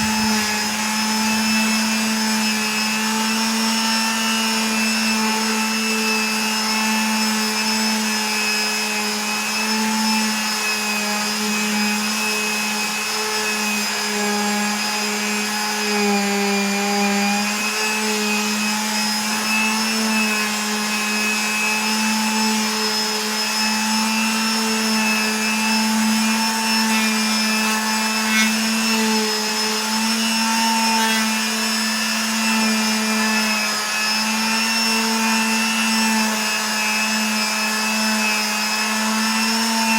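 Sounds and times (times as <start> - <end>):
motor humming: 0.0 - 2.9, 23.6 - 31.6.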